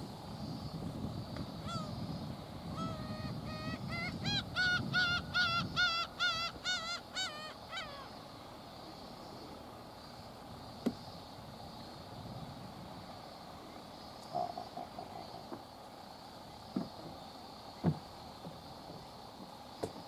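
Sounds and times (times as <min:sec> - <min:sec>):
bird calling wavering notes: 0:02.7 - 0:08.2.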